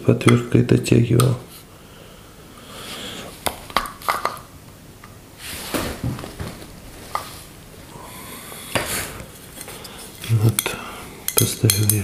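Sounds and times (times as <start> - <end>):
rustling handling noise: 5.4 - 7.9.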